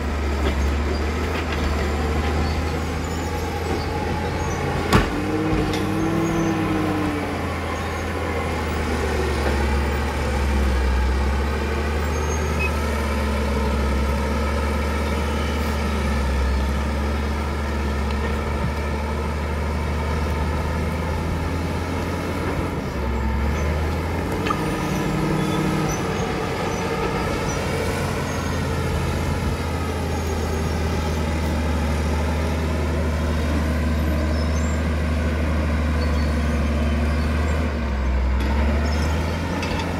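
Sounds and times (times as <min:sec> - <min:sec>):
bulldozer diesel engine running: 0:00.0 - 0:39.9
high squeal: 0:02.0 - 0:04.8.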